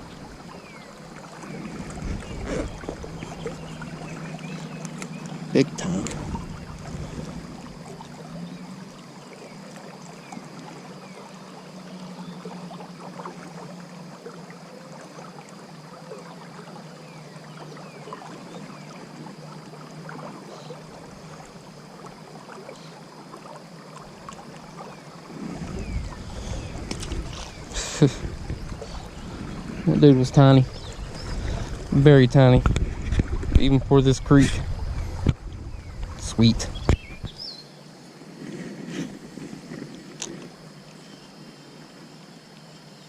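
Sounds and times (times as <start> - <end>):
creek water rippling: 0.0 - 43.0
low rumble: 5.6 - 7.9.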